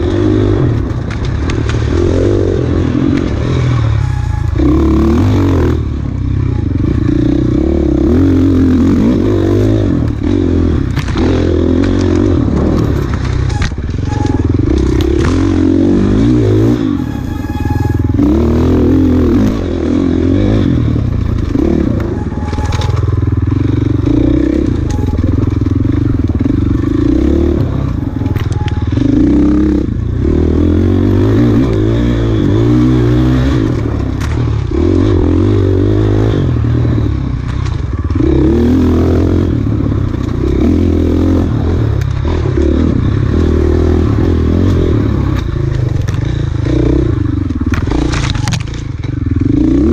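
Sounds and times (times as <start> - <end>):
motorcycle engine revving: 0.0 - 49.9
sharp clicks and knocks: 10.0 - 15.6, 47.5 - 49.2.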